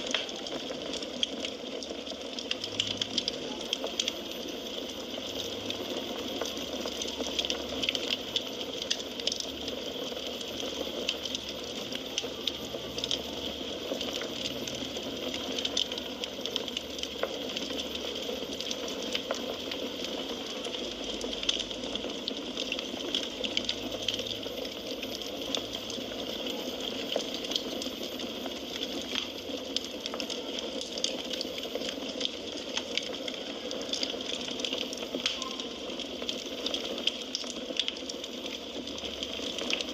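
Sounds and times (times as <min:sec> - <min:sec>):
fire crackles and pops: 0:00.0 - 0:39.9.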